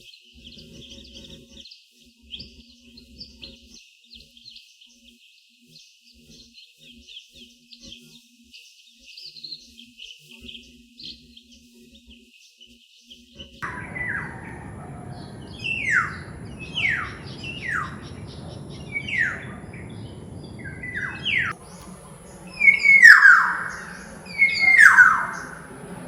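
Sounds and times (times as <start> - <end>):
oriole harsh descending calls: 13.6 - 26.0.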